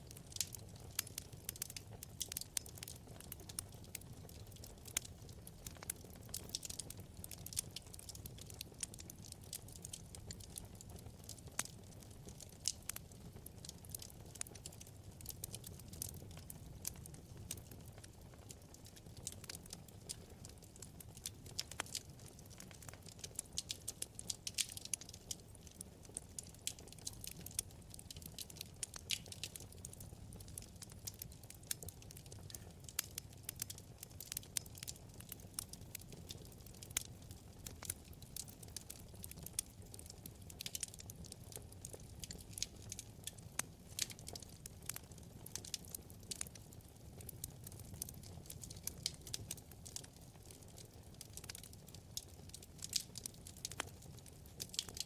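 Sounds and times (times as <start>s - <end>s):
fire crackling and popping: 0.0s - 55.0s
low rumble of flames: 0.0s - 55.0s.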